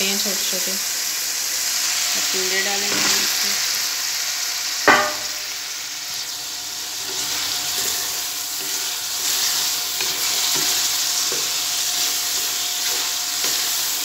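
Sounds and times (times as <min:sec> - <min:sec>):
vegetables sizzling in hot oil: 0:00.0 - 0:14.0
sharp ringing metal clank: 0:04.9 - 0:05.6
spatula stirring in metal pan: 0:07.0 - 0:14.0.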